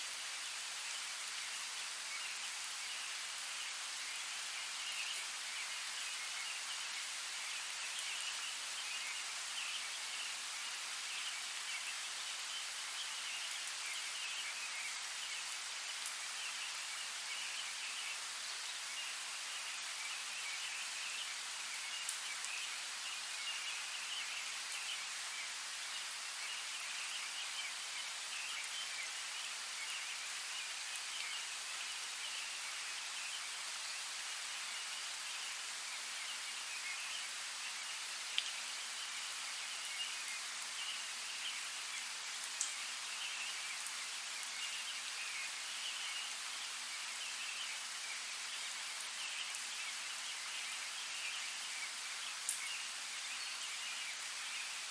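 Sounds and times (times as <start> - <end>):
rain falling in forest: 0.0 - 54.9
water drip ticks: 38.4 - 38.6, 42.4 - 42.8, 52.4 - 52.7.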